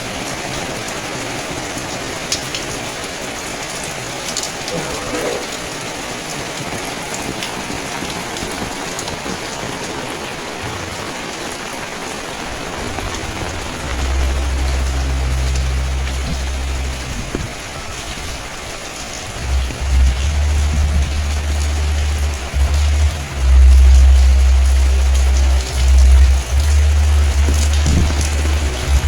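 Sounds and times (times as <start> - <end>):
raindrop ticks: 0.0 - 29.0
steady rain falling: 0.0 - 29.0
low engine hum: 12.8 - 18.1, 19.2 - 29.0.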